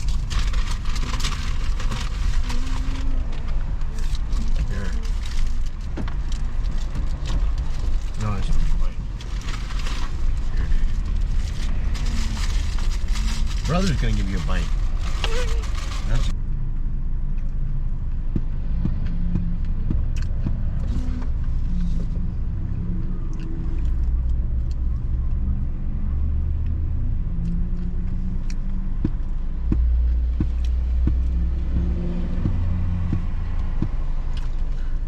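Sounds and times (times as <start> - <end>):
car cabin rumble: 0.0 - 16.4, 28.2 - 35.0.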